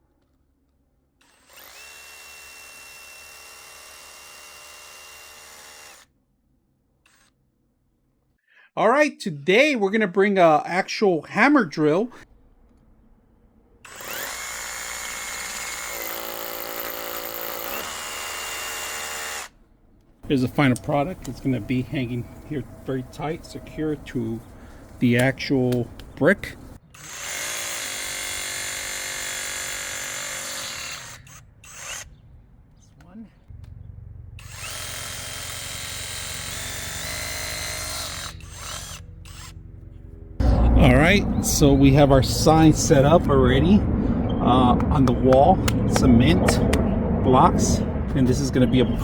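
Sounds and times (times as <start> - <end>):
hammer drill drilling into brick: 1.2 - 6.1, 13.8 - 19.6, 26.9 - 32.1, 34.4 - 39.5.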